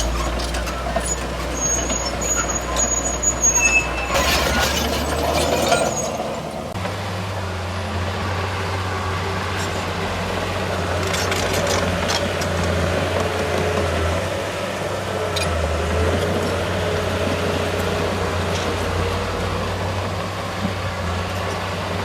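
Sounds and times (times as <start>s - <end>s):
short metallic clanks: 0.0s - 6.8s
heavy diesel engine running: 0.0s - 8.1s.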